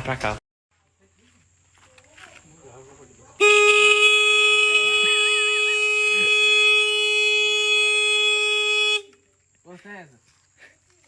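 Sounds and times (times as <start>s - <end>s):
car horn blast: 3.4s - 9.2s.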